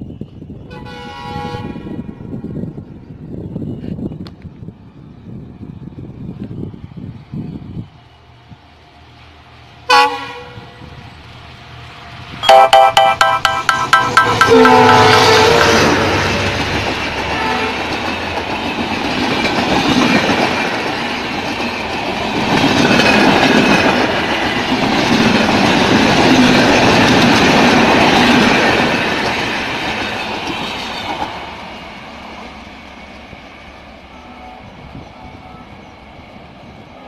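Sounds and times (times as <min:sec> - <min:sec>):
train wheels clattering over rail joints: 0:13.5 - 0:32.4.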